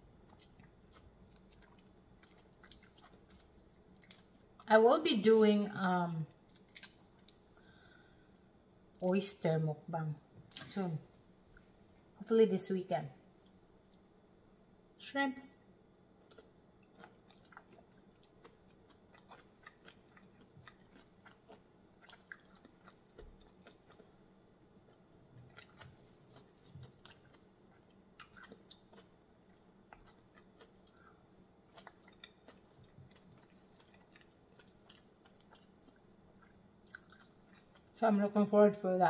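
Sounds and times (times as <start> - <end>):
faint chewing: 0.0 - 4.7, 16.2 - 24.2, 24.8 - 38.0.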